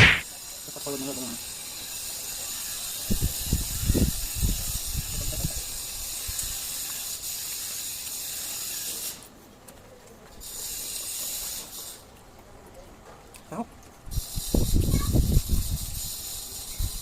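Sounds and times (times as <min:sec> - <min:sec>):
low thumps: 0:00.0 - 0:00.2.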